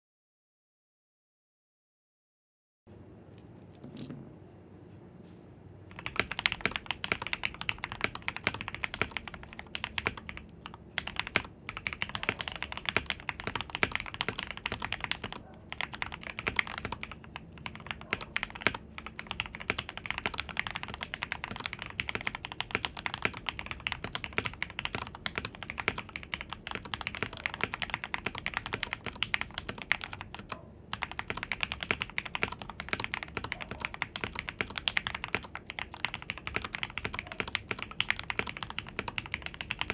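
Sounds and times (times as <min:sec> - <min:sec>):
mechanical keyboard typing: 0:05.9 - 0:39.9.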